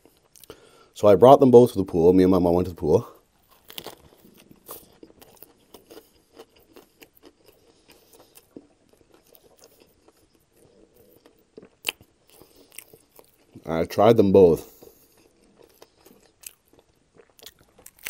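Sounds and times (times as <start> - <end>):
wet chewing mouth clicks: 3.7 - 13.6.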